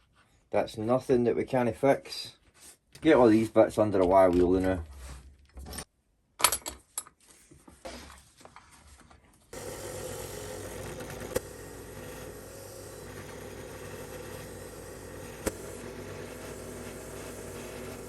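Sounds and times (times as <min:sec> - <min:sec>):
wire wheel motor running: 0:09.6 - 0:18.0.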